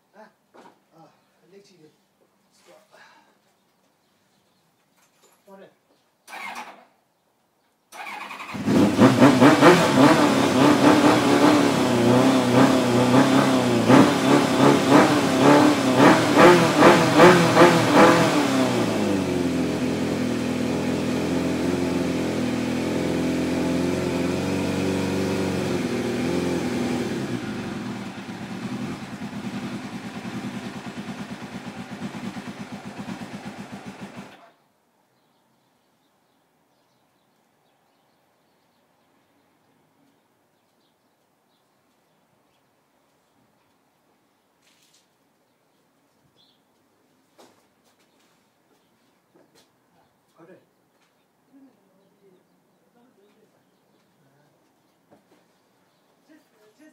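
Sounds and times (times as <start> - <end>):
motorcycle engine revving: 6.3 - 6.8, 7.9 - 34.6.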